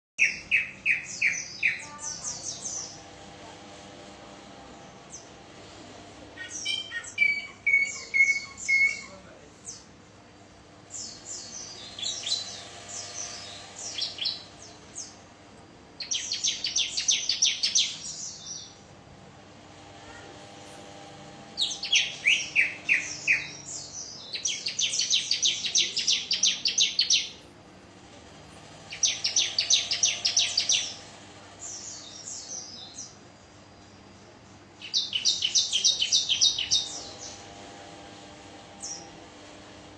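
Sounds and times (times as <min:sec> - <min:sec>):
bird chirping rapidly: 0:00.2 - 0:03.0, 0:06.4 - 0:09.9, 0:10.9 - 0:15.2, 0:16.0 - 0:18.8, 0:21.6 - 0:27.4, 0:28.9 - 0:31.0, 0:34.8 - 0:37.4, 0:38.8 - 0:39.1.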